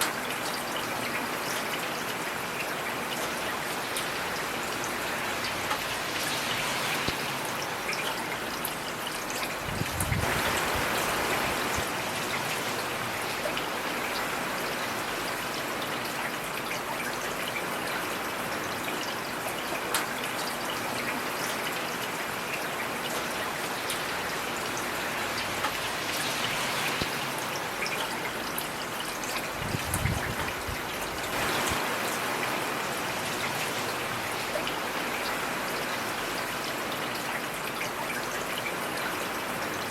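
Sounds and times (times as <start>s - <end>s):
heavy rain: 0.0s - 39.9s
raindrop ticks: 24.7s - 27.2s.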